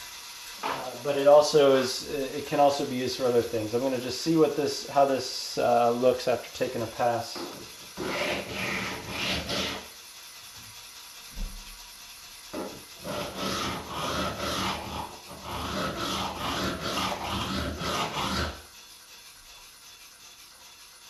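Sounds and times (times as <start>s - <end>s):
scissor blade scraping on plate: 7.5s - 9.9s, 12.6s - 18.7s.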